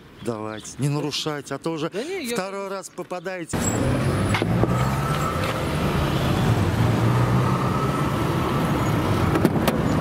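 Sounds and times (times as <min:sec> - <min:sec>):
street traffic: 0:00.0 - 0:10.0
vehicle engine humming: 0:03.6 - 0:10.0.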